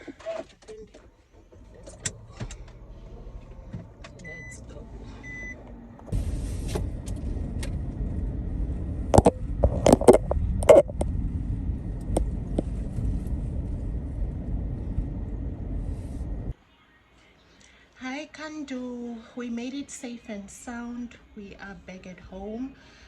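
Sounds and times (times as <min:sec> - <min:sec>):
car road and engine rumble: 0:00.4 - 0:16.6.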